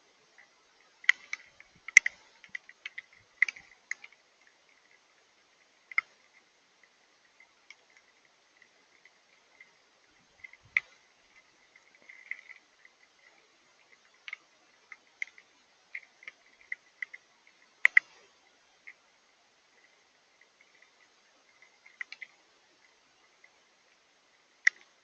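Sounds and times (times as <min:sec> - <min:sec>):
rain ticking on hard surface: 0:00.0 - 0:25.0.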